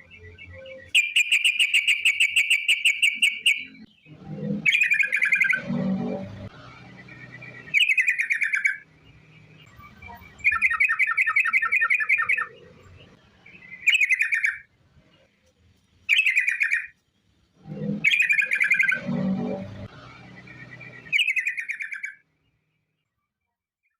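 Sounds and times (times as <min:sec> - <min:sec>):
bird chattering song: 0:00.0 - 0:05.8, 0:06.8 - 0:14.7, 0:16.1 - 0:17.0, 0:17.8 - 0:19.2, 0:20.3 - 0:22.2.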